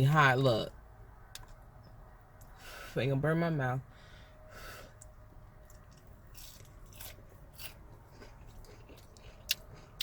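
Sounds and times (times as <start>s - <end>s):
chewing and crunching fried chicken: 4.8s - 10.0s.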